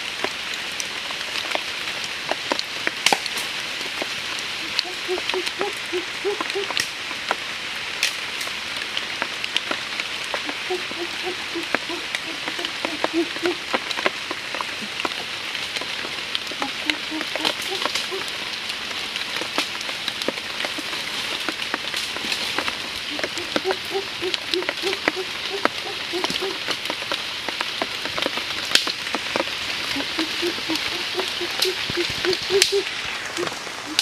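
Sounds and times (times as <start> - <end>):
drops ticking on leaves: 0.0 - 34.0
rain on foliage: 0.0 - 34.0
animal calling short low notes: 30.0 - 34.0.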